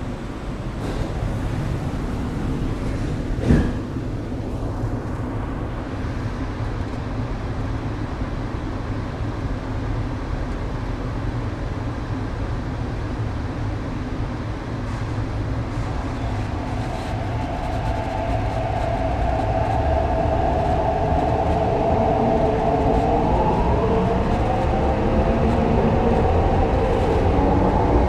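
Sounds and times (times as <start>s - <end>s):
train wheels rumbling: 14.7s - 28.0s.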